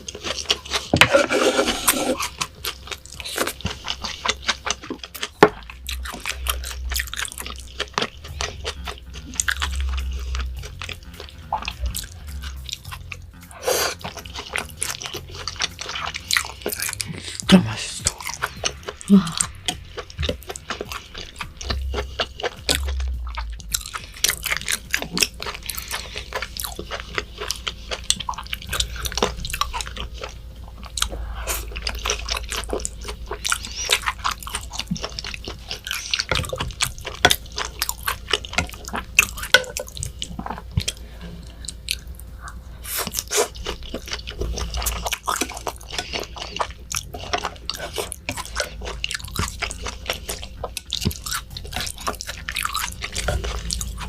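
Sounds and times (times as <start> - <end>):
chewing and mouth sounds: 0.0 - 54.0.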